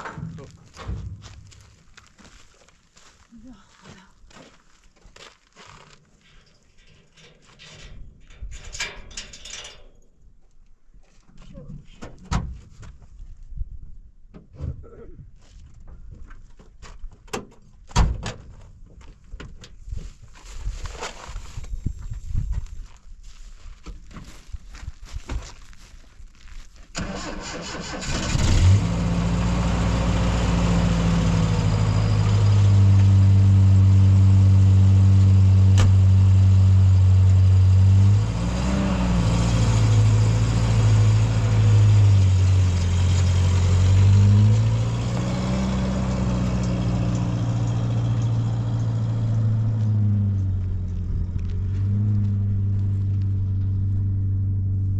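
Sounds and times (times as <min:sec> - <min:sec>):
car engine cranking and revving: 0:26.9 - 0:54.9.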